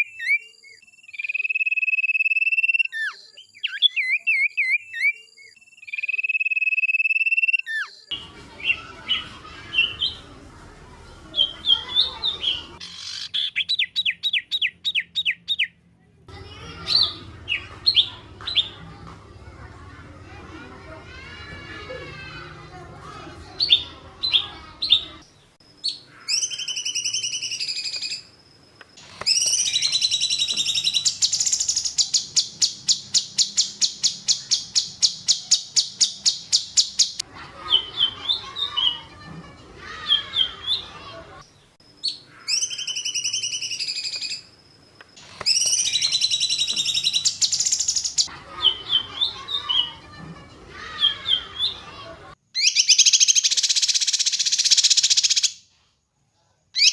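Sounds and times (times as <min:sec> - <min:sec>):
songbird chirps and whistles: 0:00.0 - 0:10.4, 0:16.7 - 0:19.2, 0:23.5 - 0:28.3, 0:29.2 - 0:39.2, 0:39.8 - 0:44.5, 0:45.4 - 0:55.6
fast bird trill: 0:45.5 - 0:50.1.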